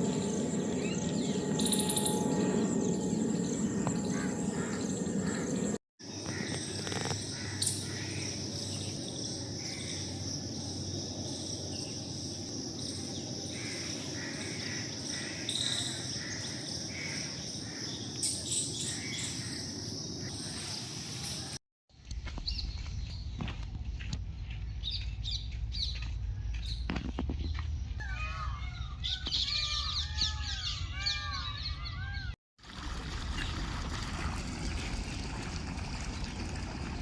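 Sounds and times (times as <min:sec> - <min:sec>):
low hum: 0:00.0 - 0:05.8
insects trilling: 0:00.0 - 0:18.2
bird calls: 0:26.7 - 0:32.4.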